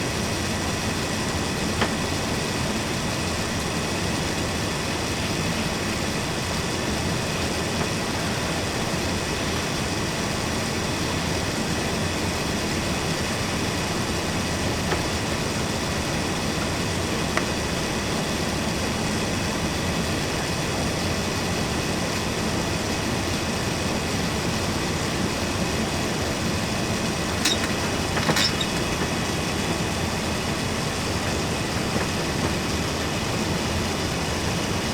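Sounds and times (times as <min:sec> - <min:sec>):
airplane cabin drone: 0:25.0 - 0:34.9.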